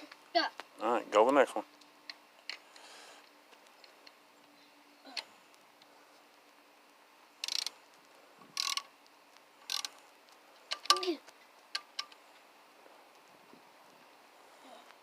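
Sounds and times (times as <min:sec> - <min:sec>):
socket ratchet clicking: 0:07.4 - 0:07.7, 0:08.6 - 0:08.9, 0:09.7 - 0:09.9.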